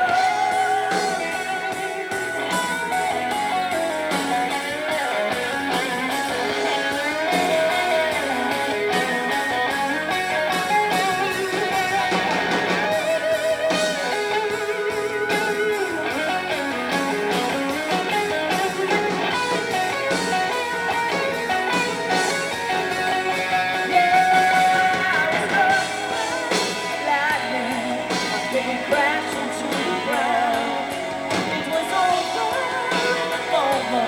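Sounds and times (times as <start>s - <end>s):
electric guitar lead with bent notes: 0.0s - 34.0s
rock band playing live: 0.0s - 34.0s.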